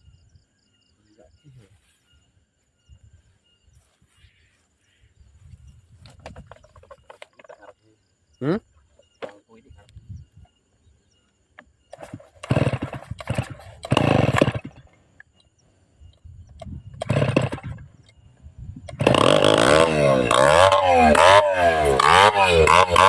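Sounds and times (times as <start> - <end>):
chainsaw starting and revving: 11.9 - 15.0, 16.5 - 18.2, 18.9 - 23.0.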